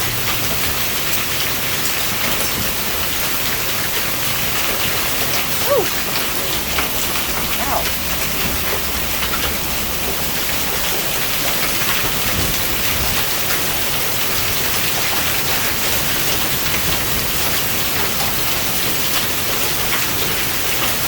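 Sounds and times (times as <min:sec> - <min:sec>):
hail hitting: 0:00.0 - 0:21.0
heavy rain downpour: 0:00.0 - 0:21.0.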